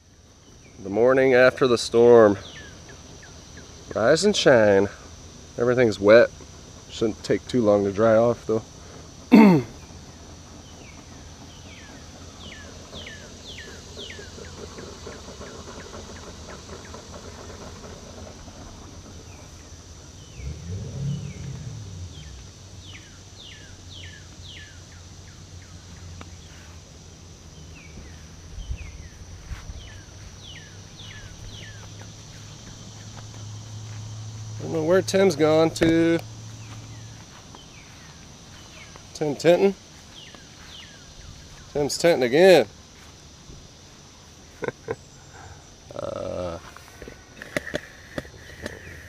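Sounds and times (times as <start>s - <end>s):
high insect drone: 0.0s - 49.0s
songbird singing: 0.0s - 49.0s
low hum: 17.3s - 41.7s
brief low rumble: 20.2s - 22.7s.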